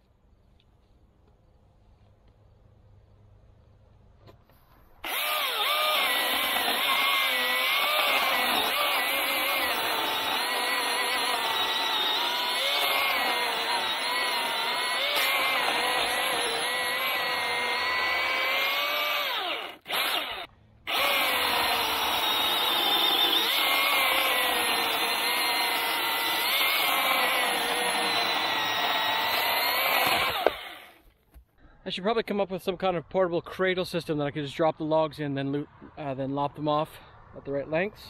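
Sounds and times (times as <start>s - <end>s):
battery chainsaw cutting logs: 5.0s - 31.1s.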